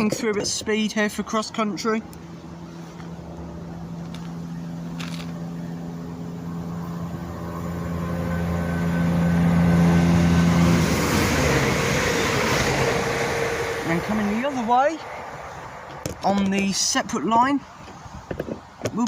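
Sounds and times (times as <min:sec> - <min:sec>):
diesel train engine hum: 0:00.0 - 0:16.3
train wheel and rail noise: 0:06.8 - 0:16.1.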